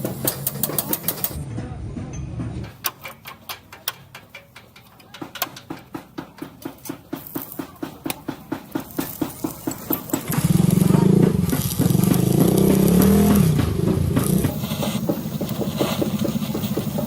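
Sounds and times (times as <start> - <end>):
engine idling and revving: 8.0 - 17.0.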